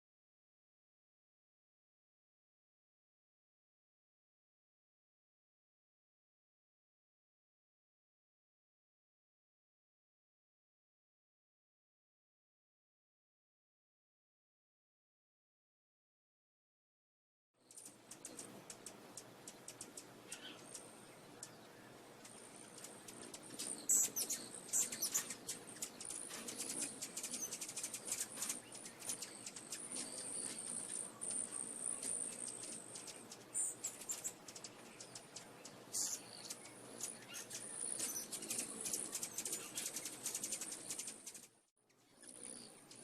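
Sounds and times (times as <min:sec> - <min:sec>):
small birds chirping: 0:17.6 - 0:43.0.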